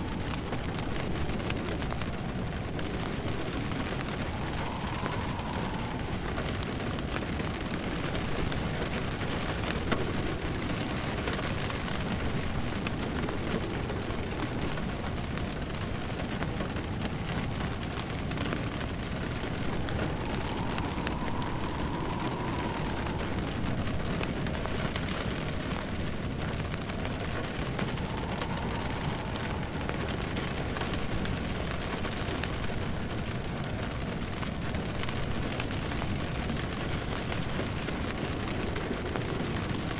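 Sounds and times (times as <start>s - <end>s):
faint wind howl: 0.0s - 39.9s
rain pattering: 0.0s - 39.9s
fireplace crackling: 19.1s - 24.7s, 26.8s - 31.3s.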